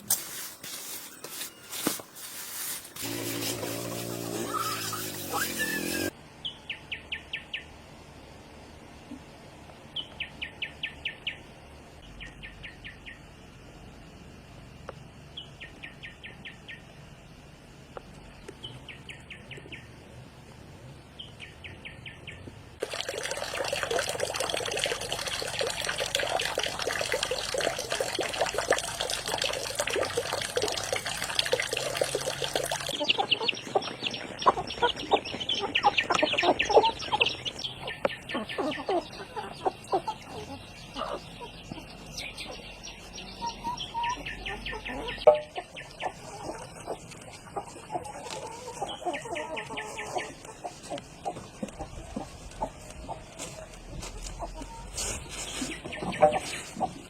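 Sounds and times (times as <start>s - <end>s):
rush of running water: 22.8s - 34.8s.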